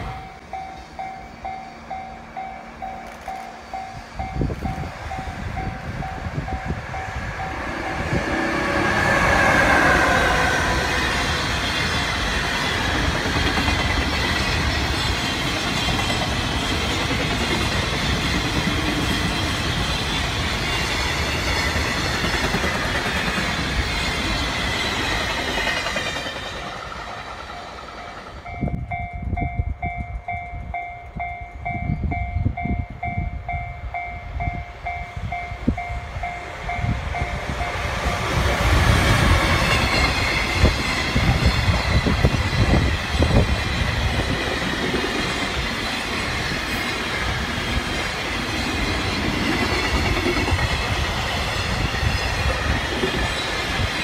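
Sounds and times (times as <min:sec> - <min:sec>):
level-crossing warning bell: 0:00.0 - 0:13.2, 0:23.4 - 0:38.6, 0:39.2 - 0:53.9
freight train passing: 0:00.0 - 0:54.0.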